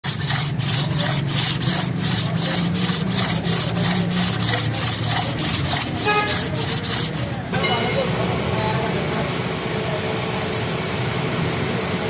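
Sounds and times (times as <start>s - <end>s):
rubbing strokes on metal: 0.0s - 8.0s.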